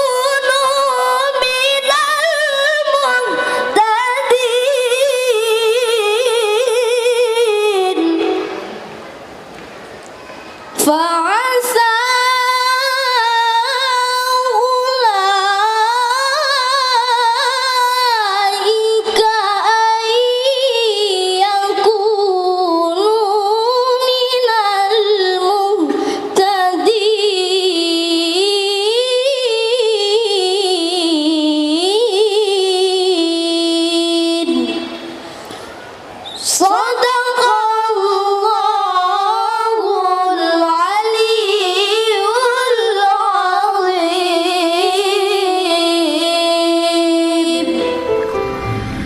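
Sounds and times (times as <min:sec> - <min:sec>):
child reciting melodically: 0:36.3 - 0:47.8.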